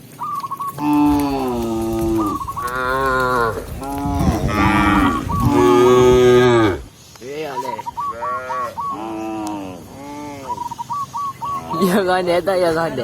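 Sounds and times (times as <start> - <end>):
cows mooing: 0.8 - 6.9, 8.1 - 10.5.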